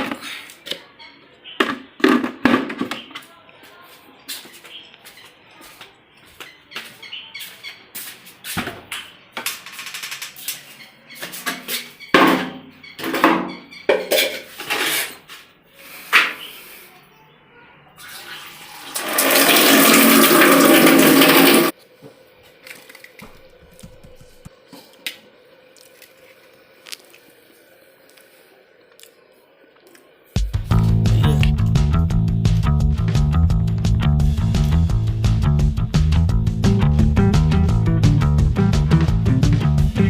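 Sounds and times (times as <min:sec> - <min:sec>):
running water rushing: 0:18.2 - 0:21.7
water splashing and knocking: 0:19.0 - 0:21.7.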